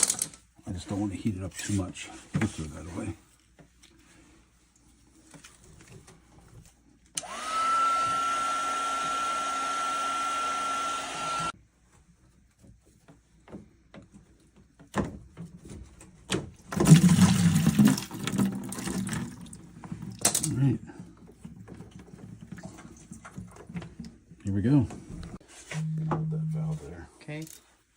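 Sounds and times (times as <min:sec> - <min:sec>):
heat gun fan whine: 0:07.2 - 0:11.5
knocks and clatter of handling: 0:11.9 - 0:25.4.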